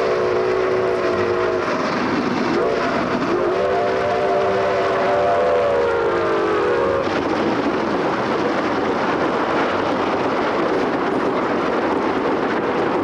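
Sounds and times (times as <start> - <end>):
train whistle: 0.0 - 1.8, 2.5 - 7.1
train rushing past: 0.0 - 13.0.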